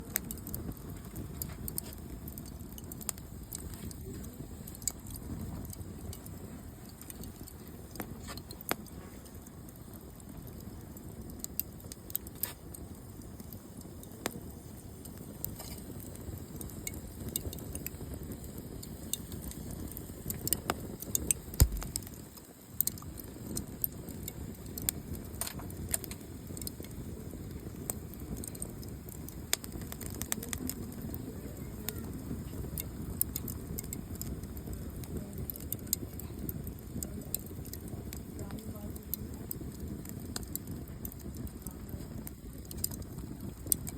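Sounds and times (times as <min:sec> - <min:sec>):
campfire crackling: 0:00.0 - 0:43.9
low rumble of flames: 0:00.0 - 0:43.9
sharp pops and snaps: 0:00.0 - 0:43.9
loud low thump: 0:21.6 - 0:22.0.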